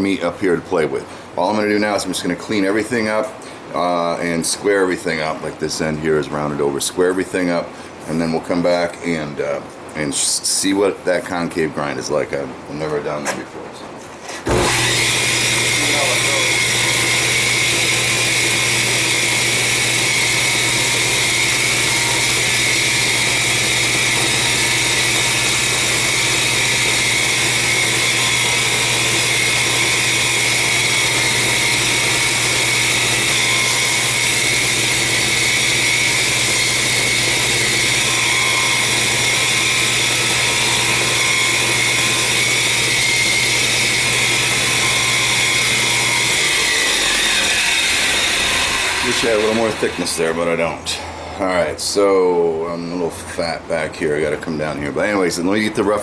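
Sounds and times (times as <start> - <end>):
belt grinder grinding steel: 14.4 - 50.6.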